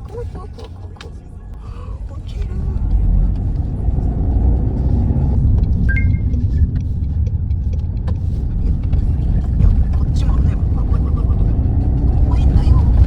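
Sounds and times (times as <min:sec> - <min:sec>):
car road and engine rumble: 0:00.0 - 0:13.0
high two-tone chirp: 0:05.9 - 0:06.6.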